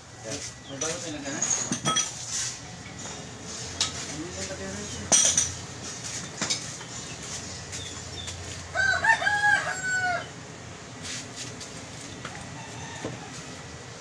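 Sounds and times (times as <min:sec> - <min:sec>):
rooster crowing: 0:08.7 - 0:10.4, 0:12.2 - 0:13.7.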